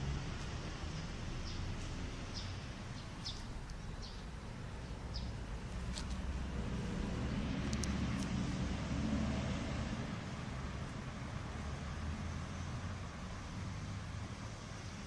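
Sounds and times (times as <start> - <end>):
low rumble of traffic: 0.0 - 15.0
small birds chirping: 0.9 - 6.2.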